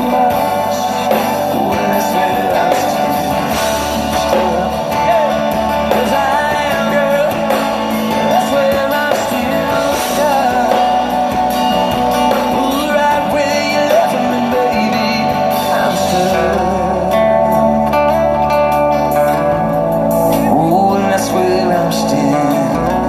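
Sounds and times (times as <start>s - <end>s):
bending lead guitar line: 0.0s - 23.0s
country-rock band playing: 0.0s - 23.0s.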